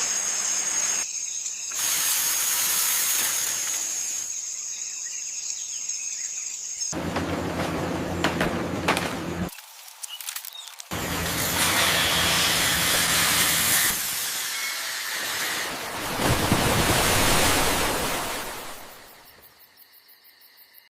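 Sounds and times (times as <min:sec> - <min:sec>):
loud steady hissing: 0:00.0 - 0:04.6.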